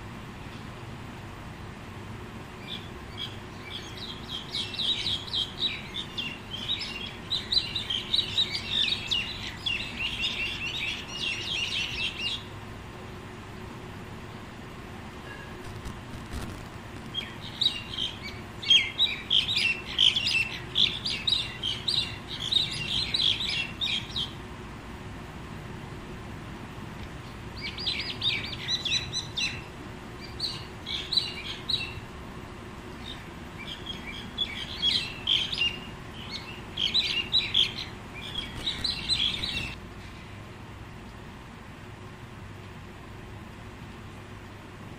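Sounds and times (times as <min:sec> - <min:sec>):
birds chirping: 0:02.5 - 0:12.7, 0:15.2 - 0:24.5, 0:27.2 - 0:40.3.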